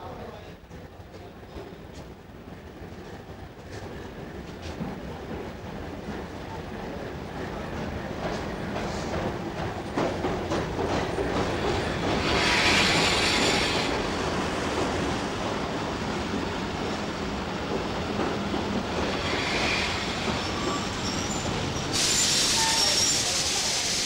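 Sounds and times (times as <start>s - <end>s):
train wheels clicking over rail joints: 1.1s - 15.6s
high brake squeal: 19.2s - 24.0s.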